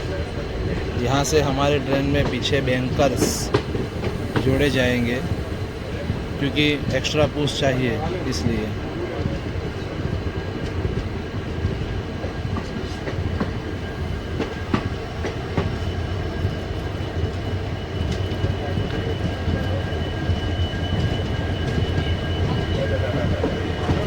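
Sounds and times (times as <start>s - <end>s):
train rumbling on track: 0.0s - 24.0s
train wheel clicks: 1.0s - 5.5s.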